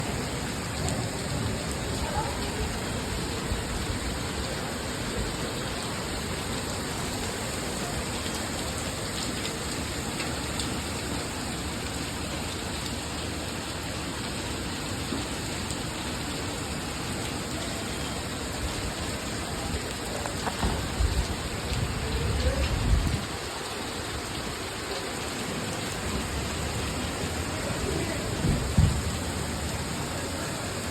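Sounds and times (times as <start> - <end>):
heavy rain pouring: 0.0 - 30.9
deep thunder rumble: 20.6 - 23.4, 27.8 - 29.8.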